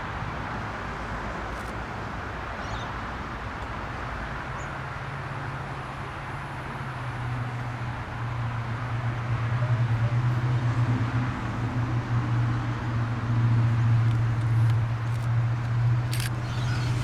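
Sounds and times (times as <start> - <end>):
vehicle engine humming: 13.5 - 17.0.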